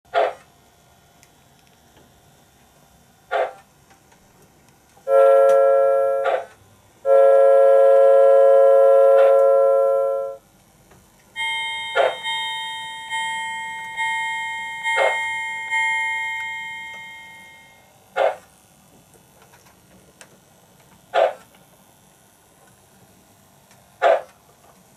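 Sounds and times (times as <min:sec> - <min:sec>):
locomotive bell ringing: 0:05.1 - 0:06.5, 0:07.1 - 0:10.4, 0:11.4 - 0:17.9
model locomotive whistle blasts: 0:05.1 - 0:10.4, 0:11.4 - 0:13.2.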